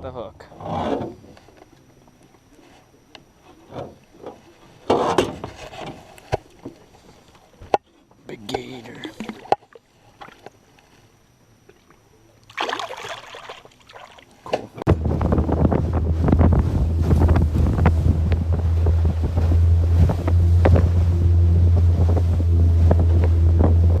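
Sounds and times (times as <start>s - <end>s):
outboard motor running: 0.5s - 24.0s
water splashing against hull: 8.6s - 10.6s, 11.6s - 24.0s
wind buffeting microphone: 14.9s - 24.0s.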